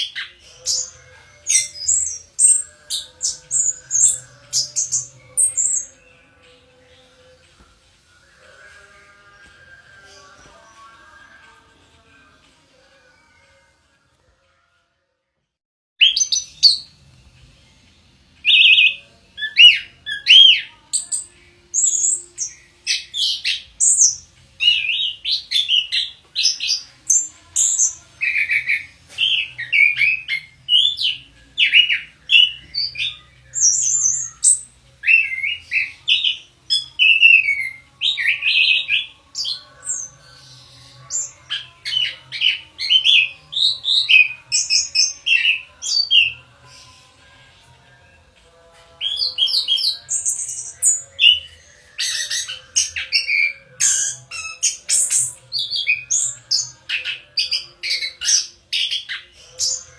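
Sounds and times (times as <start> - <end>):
thrush singing whistled phrases: 0.0 - 6.2, 16.0 - 16.9, 18.4 - 47.4, 49.0 - 59.9.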